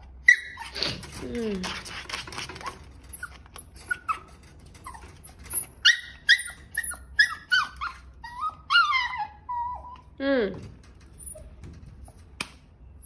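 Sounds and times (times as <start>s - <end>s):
dog yipping and whining: 0.1s - 1.1s, 2.6s - 10.2s, 11.1s - 11.6s.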